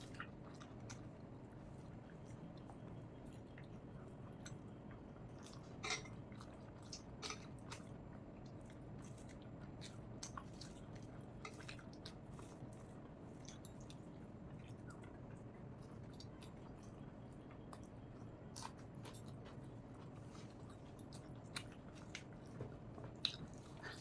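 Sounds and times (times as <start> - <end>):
person chewing with mouth smacks: 17.6 - 24.0.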